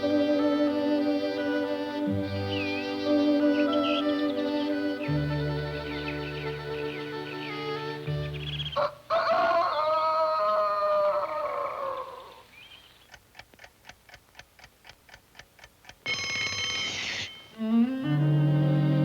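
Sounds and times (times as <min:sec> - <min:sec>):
orchestral cartoon music: 0:00.0 - 0:08.7, 0:17.6 - 0:19.0
clock ticking: 0:13.0 - 0:17.8
alarm clock bell ringing: 0:16.0 - 0:17.7.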